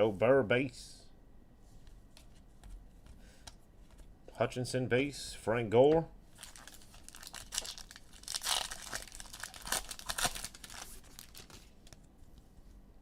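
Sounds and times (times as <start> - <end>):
wrappers crinkling and tearing: 6.3 - 12.1.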